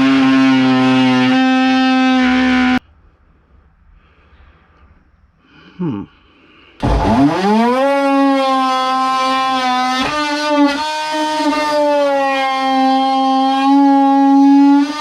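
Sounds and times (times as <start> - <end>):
power tool motor whining: 0.0 - 2.8, 6.8 - 15.0.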